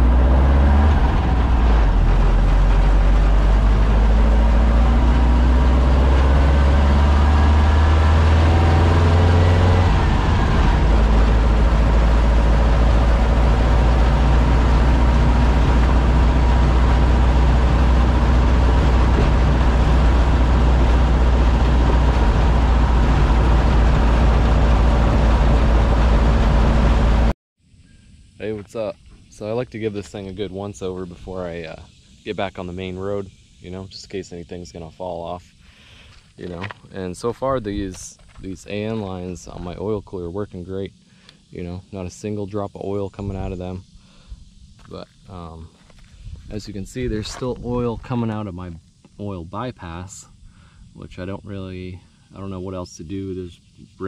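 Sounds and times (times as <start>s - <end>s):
car engine running: 0.0s - 27.3s.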